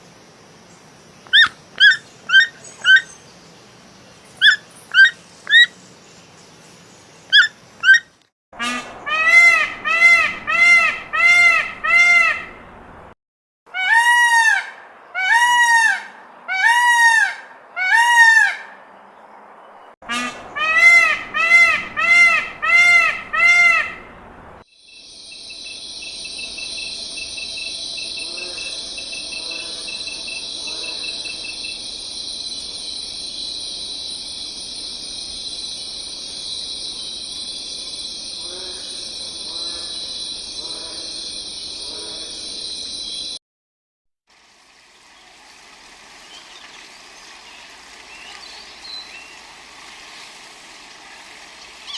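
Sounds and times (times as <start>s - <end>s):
animal calling: 1.3s - 3.2s, 4.4s - 5.7s, 7.3s - 8.1s.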